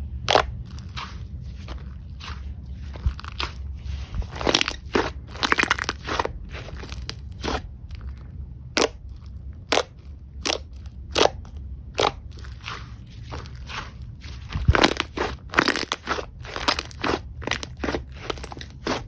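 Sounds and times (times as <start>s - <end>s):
slime crackling and popping: 0.2s - 8.1s, 8.7s - 19.0s.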